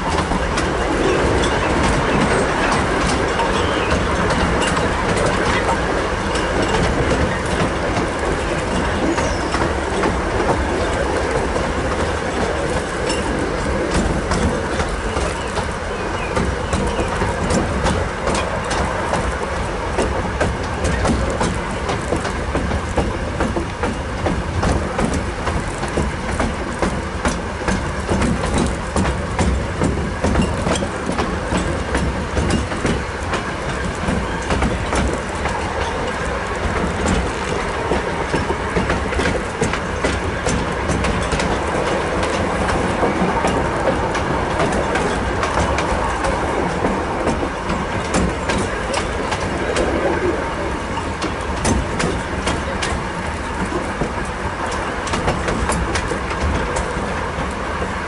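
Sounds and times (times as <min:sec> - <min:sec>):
train rumbling: 0:00.0 - 0:58.0
wheels clattering over rail joints: 0:00.0 - 0:58.0.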